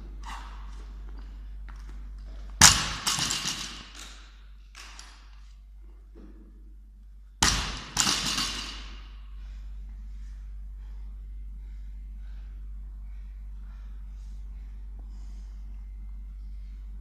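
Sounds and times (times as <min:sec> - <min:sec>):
barbell dropped on floor: 0:02.6 - 0:04.2, 0:07.4 - 0:09.1.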